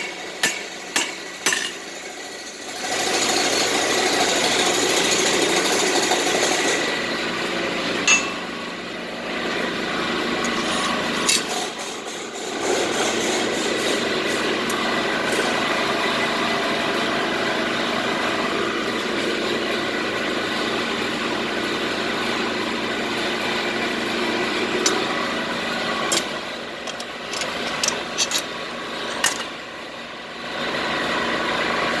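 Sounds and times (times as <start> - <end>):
machine running: 23.2 - 29.8.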